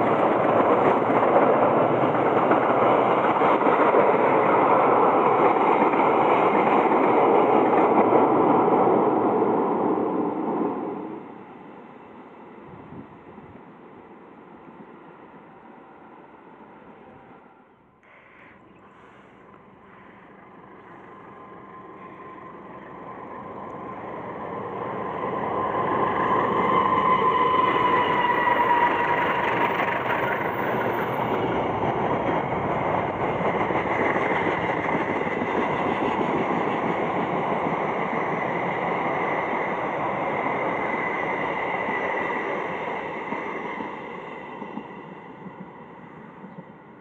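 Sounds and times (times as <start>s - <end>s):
diesel train passing: 0.0s - 47.0s
train wheels rolling: 18.9s - 46.9s.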